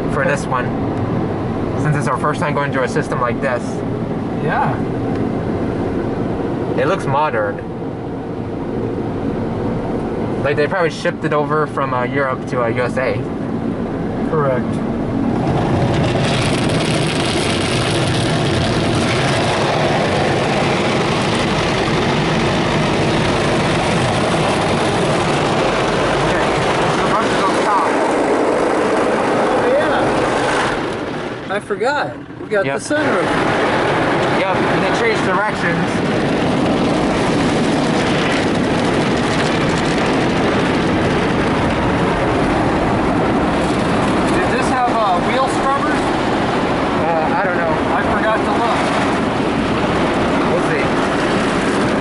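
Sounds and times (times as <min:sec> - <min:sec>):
car-wash brushes and water spray: 0:15.3 - 0:31.5, 0:32.9 - 0:47.0.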